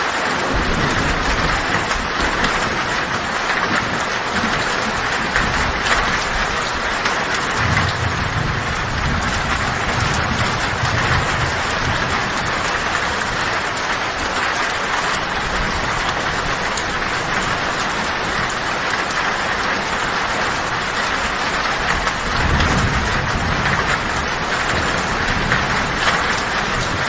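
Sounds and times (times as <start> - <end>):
heavy rain on a tin roof: 0.0 - 27.0
low thunder rumble: 0.4 - 27.0.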